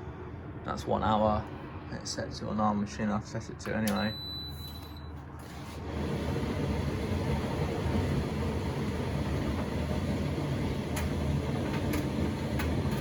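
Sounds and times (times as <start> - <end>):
tumble dryer humming: 5.8 - 13.0.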